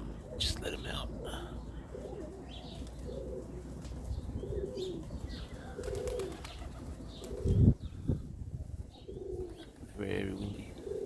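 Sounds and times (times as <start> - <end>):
pigeons cooing: 0.0 - 11.0
wind gust on microphone: 6.5 - 10.0.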